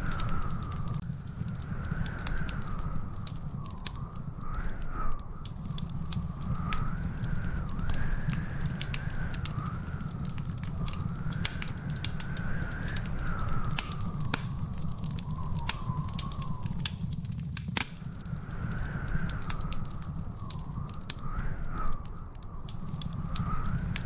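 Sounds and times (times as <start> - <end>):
wood fire crackling and popping: 0.0 - 24.0
faint wavering whistle: 11.6 - 17.1.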